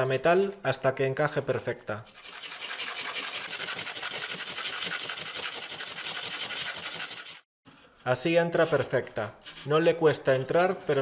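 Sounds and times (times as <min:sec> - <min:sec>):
metal rubbing on sandpaper: 0:02.1 - 0:07.5, 0:08.6 - 0:10.0.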